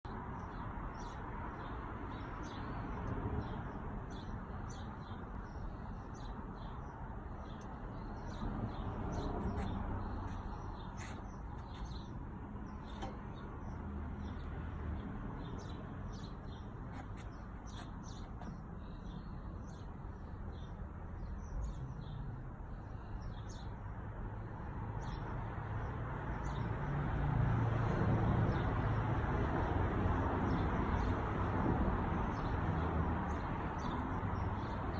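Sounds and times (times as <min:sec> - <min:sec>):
small birds chirping: 0:00.1 - 0:23.8, 0:33.3 - 0:34.9.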